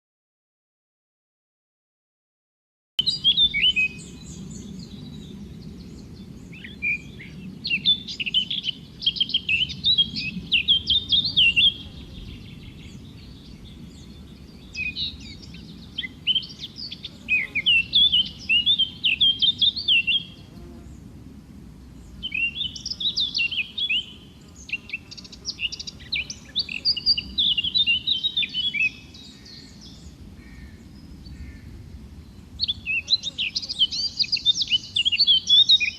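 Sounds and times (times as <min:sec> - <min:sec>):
low background noise: 0:03.0 - 0:35.9
songbird chirps and trills: 0:03.0 - 0:35.9.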